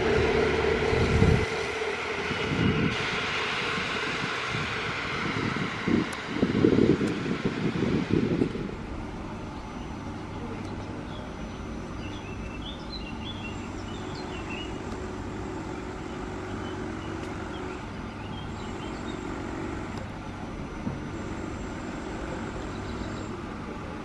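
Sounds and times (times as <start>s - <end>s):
train running hum: 0.0s - 24.0s
faint bird chirps: 9.5s - 14.8s.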